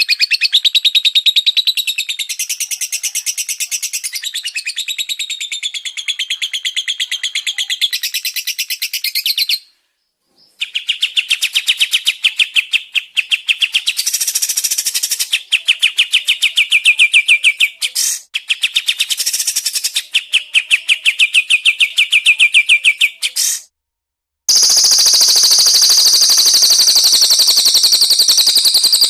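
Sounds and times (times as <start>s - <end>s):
songbird trilling: 24.5s - 29.0s.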